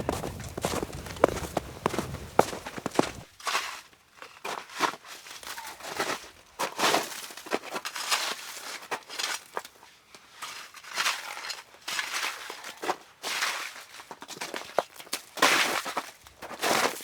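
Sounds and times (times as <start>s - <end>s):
crunching and rustling: 0.0s - 3.3s.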